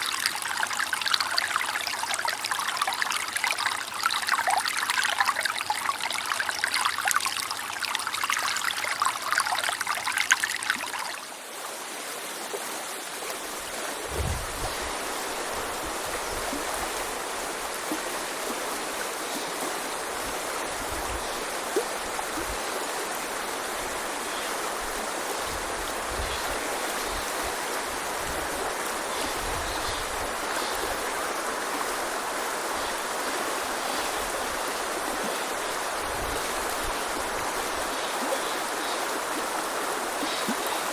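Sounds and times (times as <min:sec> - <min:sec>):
river babbling over stones: 0:00.0 - 0:40.9.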